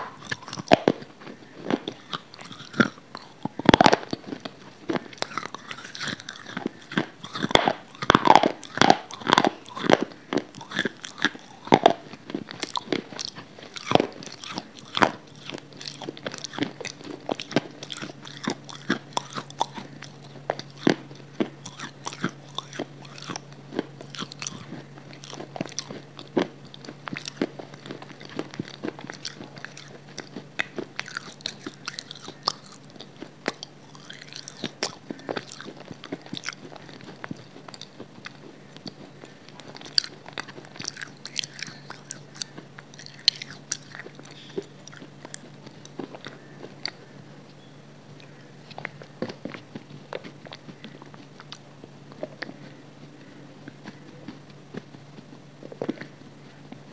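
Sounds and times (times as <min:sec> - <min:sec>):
chewing and crunching: 0:00.0 - 0:56.9
faint low hum: 0:00.0 - 0:56.9.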